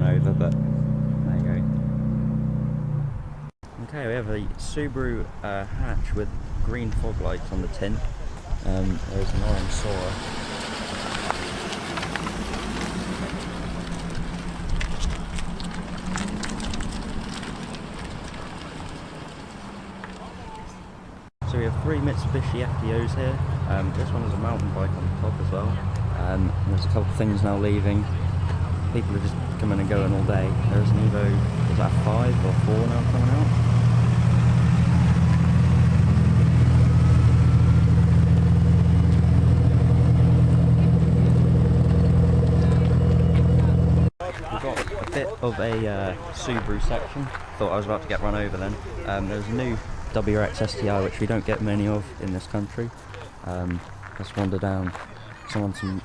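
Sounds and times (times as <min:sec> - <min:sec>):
car engine running at low revs: 0:00.0 - 0:03.5, 0:21.4 - 0:44.1
small ticks and crackles: 0:11.0 - 0:20.3.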